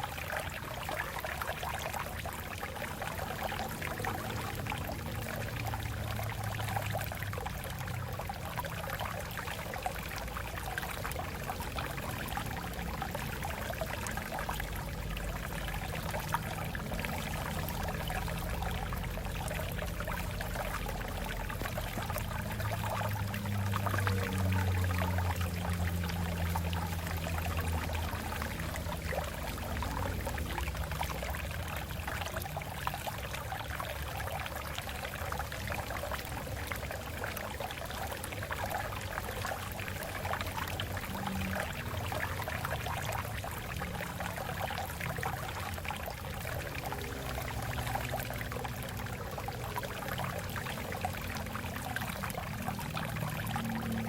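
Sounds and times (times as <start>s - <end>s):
stream water splashing over rocks: 0.0s - 54.0s.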